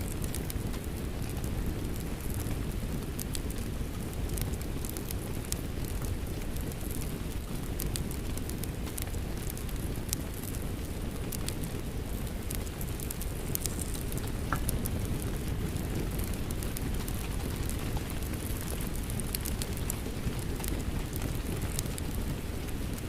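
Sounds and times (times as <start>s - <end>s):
wood fire crackling and popping: 0.0s - 23.0s
rain hissing: 12.7s - 18.4s.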